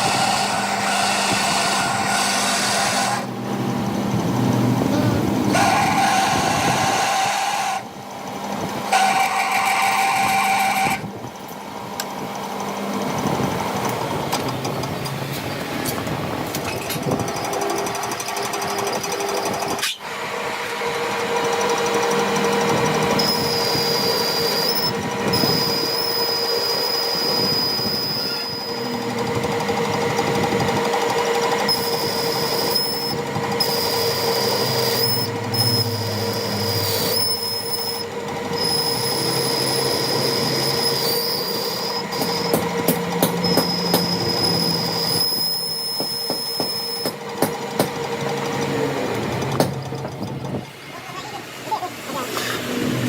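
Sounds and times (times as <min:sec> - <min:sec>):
workshop machine running: 0:00.0 - 0:53.0
high squeal: 0:23.1 - 0:29.0, 0:31.6 - 0:42.6, 0:43.4 - 0:47.2.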